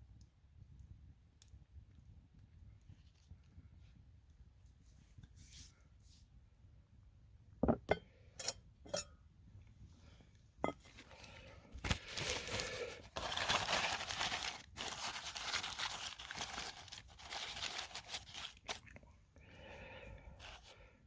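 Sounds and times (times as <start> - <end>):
wrapping crinkling: 11.8 - 18.9.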